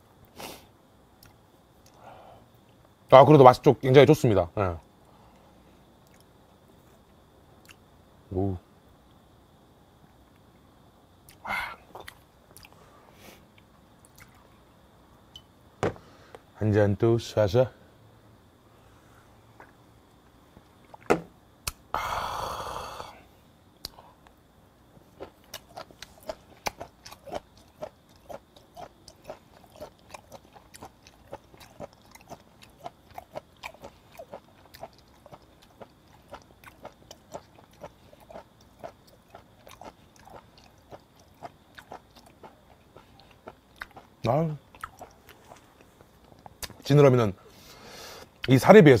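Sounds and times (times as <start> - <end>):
crunchy chewing: 11.2 - 14.6, 23.8 - 48.6
loud breathy exhale: 21.9 - 23.3, 47.5 - 48.3.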